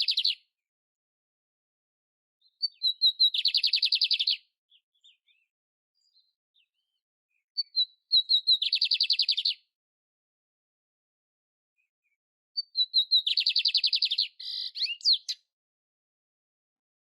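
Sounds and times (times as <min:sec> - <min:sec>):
canary singing buzzy trill: 0:02.4 - 0:05.4, 0:07.6 - 0:09.7, 0:12.6 - 0:15.5.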